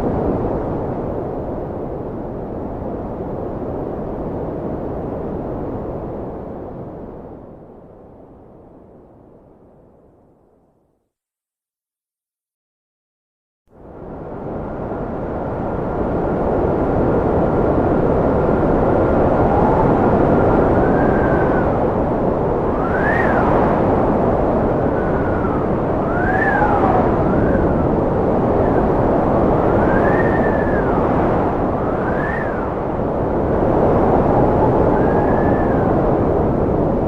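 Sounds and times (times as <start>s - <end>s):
wind blowing hard: 0.0s - 8.2s, 13.8s - 37.0s
wind whistling howl: 0.0s - 9.7s, 13.8s - 37.0s.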